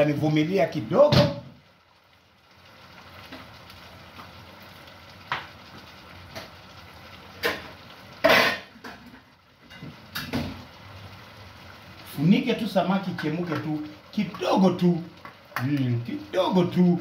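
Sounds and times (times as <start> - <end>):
fish sizzling in a pot: 0.0 - 17.0.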